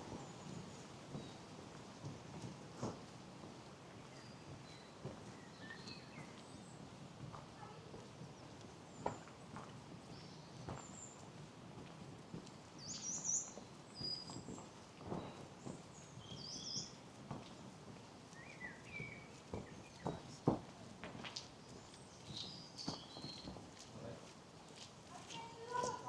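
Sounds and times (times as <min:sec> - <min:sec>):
footsteps on a path: 0:17.1 - 0:26.0
songbirds chirping and trilling: 0:21.6 - 0:23.6.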